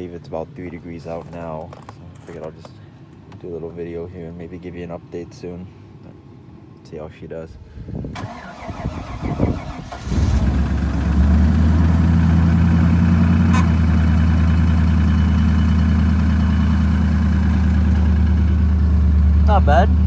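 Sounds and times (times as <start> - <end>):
pickup engine idling: 8.3 - 20.0.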